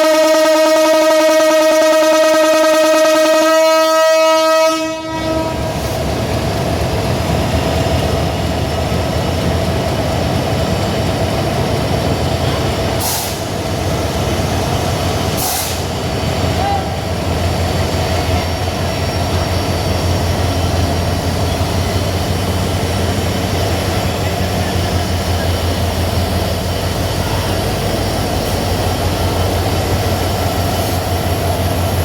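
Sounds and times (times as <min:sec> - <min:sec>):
train horn blast: 0:00.0 - 0:06.0
train rumbling on track: 0:00.0 - 0:32.0
brief hisses: 0:13.0 - 0:13.5, 0:15.3 - 0:15.9.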